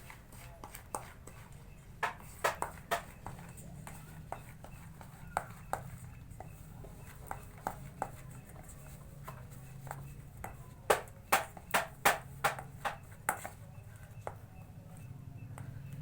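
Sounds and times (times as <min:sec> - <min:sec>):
utensil knocking against a bowl: 0:02.0 - 0:04.5, 0:09.9 - 0:13.6.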